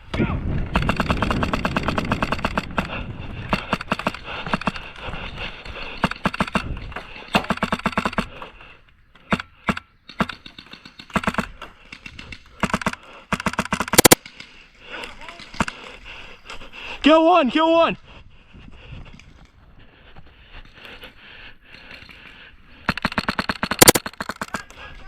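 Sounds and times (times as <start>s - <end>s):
airsoft guns firing bursts: 0.6s - 4.8s, 5.9s - 8.4s, 9.2s - 14.6s, 22.8s - 24.8s.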